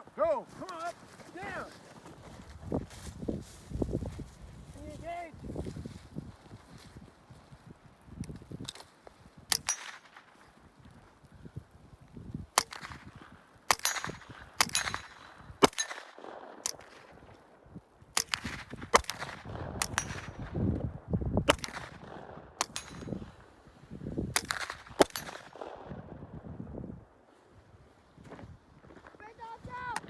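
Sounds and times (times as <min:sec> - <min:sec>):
gunshots: 0:13.7 - 0:17.2, 0:18.2 - 0:20.6, 0:21.5 - 0:23.1.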